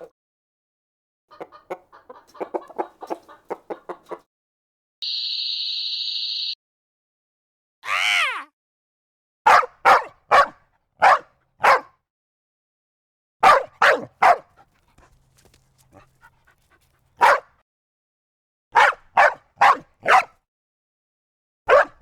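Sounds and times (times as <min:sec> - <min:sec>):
dog barking: 0:09.5 - 0:12.0, 0:13.4 - 0:17.6, 0:18.8 - 0:20.4, 0:21.7 - 0:22.0.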